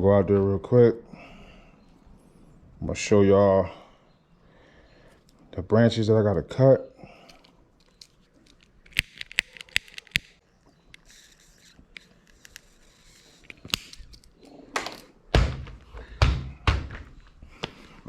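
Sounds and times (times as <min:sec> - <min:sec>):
heavy thuds: 0:15.3 - 0:17.3.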